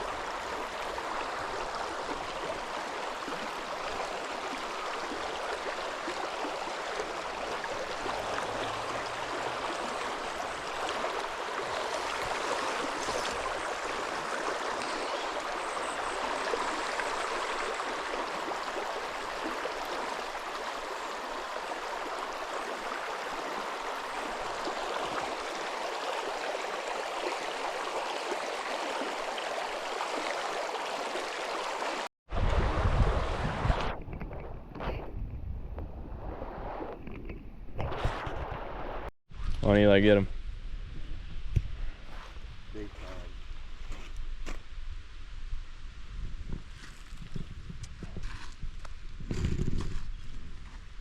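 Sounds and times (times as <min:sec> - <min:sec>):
stream flowing over rocks: 0:00.0 - 0:33.9.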